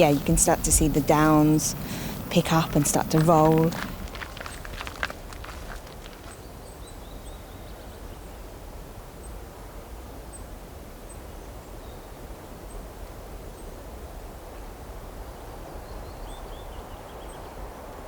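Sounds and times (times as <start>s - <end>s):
footstep clicks: 0.0s - 6.4s
low breeze rumble: 0.0s - 18.0s.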